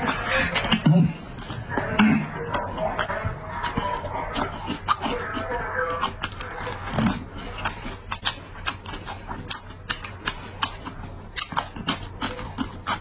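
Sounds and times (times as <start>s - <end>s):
person chewing and lip-smacking: 0.0s - 13.0s.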